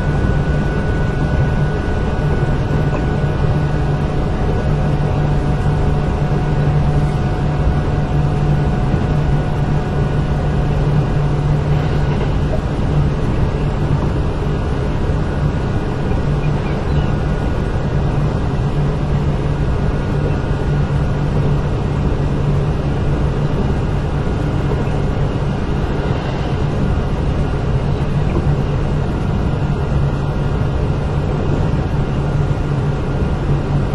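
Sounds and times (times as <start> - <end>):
electric train running: 0.0 - 33.8.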